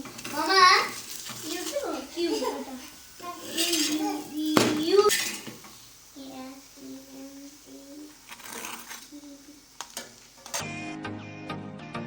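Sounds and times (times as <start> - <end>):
utensils clinking against dishes: 0.0 - 5.7.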